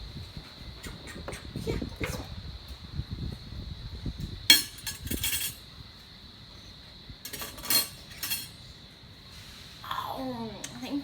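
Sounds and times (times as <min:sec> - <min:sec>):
dishes and utensils clinking: 0:04.5 - 0:05.6, 0:07.3 - 0:08.6.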